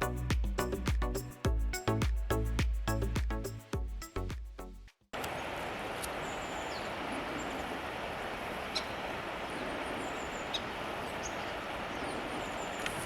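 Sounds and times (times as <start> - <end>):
river water flowing: 5.2 - 13.0
faint high bird calls: 5.3 - 13.0.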